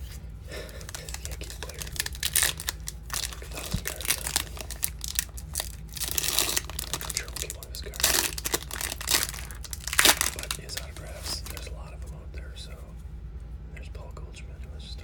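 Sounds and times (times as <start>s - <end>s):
steady low hum: 0.0s - 15.0s
foil wrapper crinkling and tearing: 0.5s - 11.7s.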